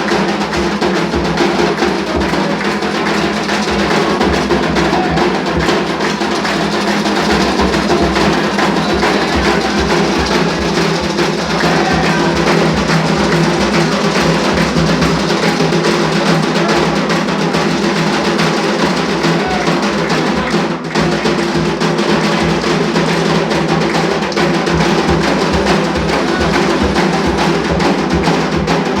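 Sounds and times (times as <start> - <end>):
hand drums playing: 0.0 - 29.0.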